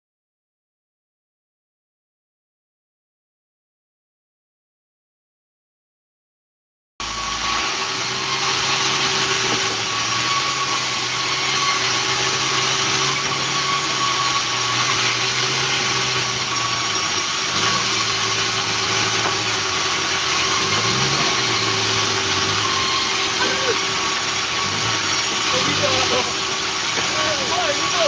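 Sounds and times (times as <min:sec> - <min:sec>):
sawmill engine running: 0:07.0 - 0:28.0.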